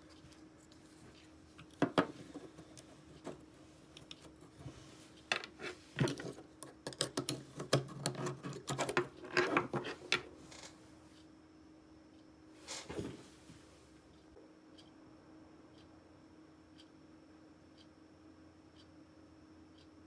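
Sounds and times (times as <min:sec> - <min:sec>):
faint steady hum: 0:00.0 - 0:20.0
hard objects clicking and knocking: 0:01.6 - 0:04.6, 0:05.2 - 0:10.7.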